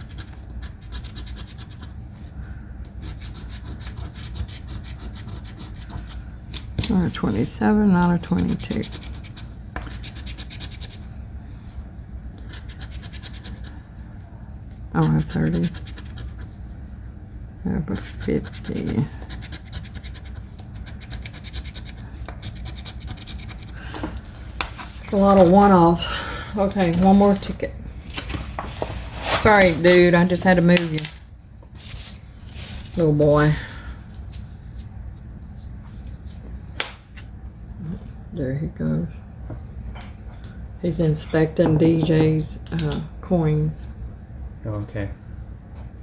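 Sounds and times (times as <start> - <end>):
coin scratching lottery ticket: 0.0 - 1.9, 3.0 - 6.0, 8.2 - 11.0, 12.5 - 13.8, 15.0 - 16.5, 18.0 - 23.7.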